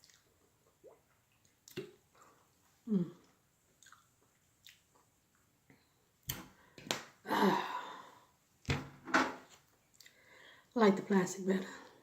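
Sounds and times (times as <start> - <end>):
mouth clicks and smacks: 0.0 - 2.5, 3.2 - 7.2, 9.8 - 10.2.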